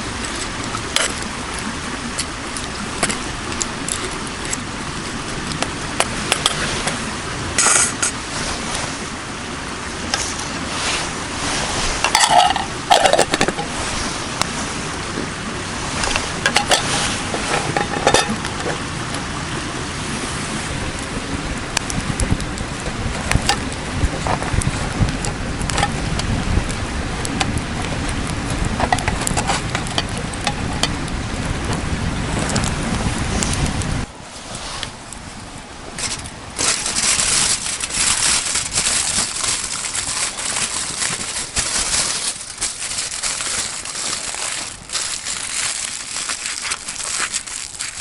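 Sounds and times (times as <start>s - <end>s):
steady noisy background: 0.0s - 48.0s
metal utensils clinking and scraping: 7.6s - 8.2s, 11.5s - 13.8s, 16.1s - 18.4s.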